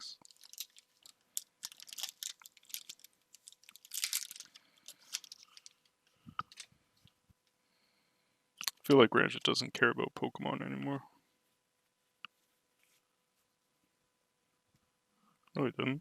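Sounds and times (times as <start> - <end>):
wrappers crinkling and rustling: 0.2 - 5.9.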